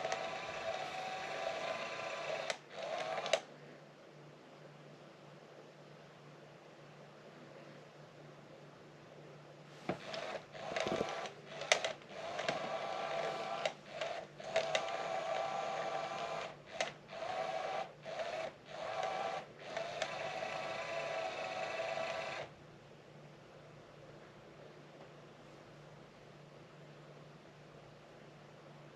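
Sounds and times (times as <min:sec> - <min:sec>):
cat toy motor whirring: 0:00.0 - 0:03.5, 0:09.9 - 0:22.5.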